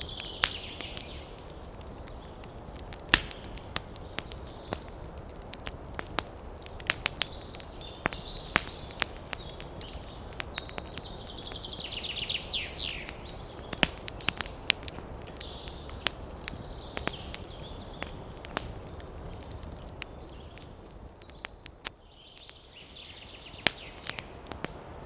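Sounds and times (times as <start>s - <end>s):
bird singing falling notes: 0.0s - 1.3s
campfire crackling and popping: 0.0s - 25.0s
small birds chirping: 0.0s - 25.0s.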